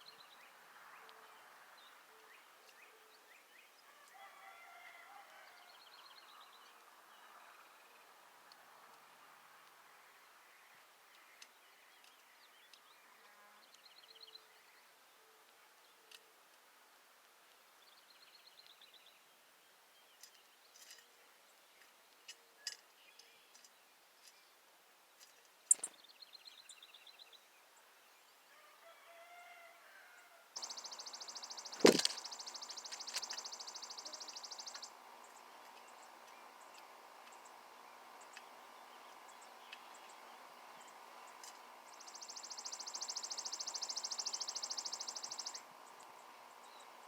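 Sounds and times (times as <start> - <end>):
small birds chattering: 25.2 - 28.2, 30.6 - 47.0.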